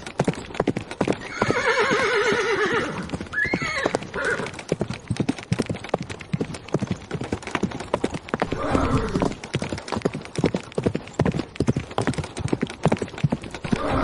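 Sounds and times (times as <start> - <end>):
horses galloping: 0.0 - 14.0
horse whinnying: 1.2 - 4.6, 8.4 - 9.4, 13.6 - 14.0.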